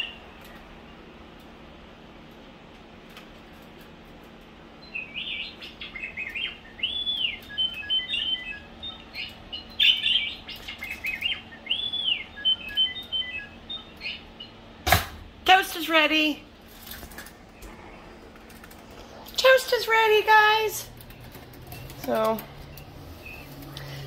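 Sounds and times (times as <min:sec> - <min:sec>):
faint steady hum: 0:00.0 - 0:24.0
electronic beeps and whistles: 0:06.8 - 0:09.1, 0:11.2 - 0:14.1.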